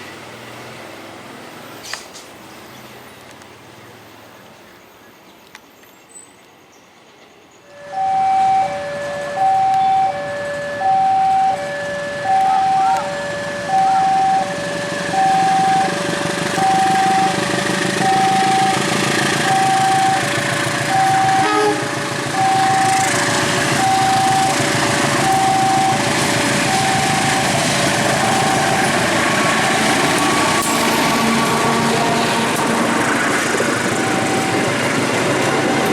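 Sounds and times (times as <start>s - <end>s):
train passing: 7.6s - 35.9s
level crossing alarm two tones: 7.7s - 32.6s, 33.8s - 35.9s.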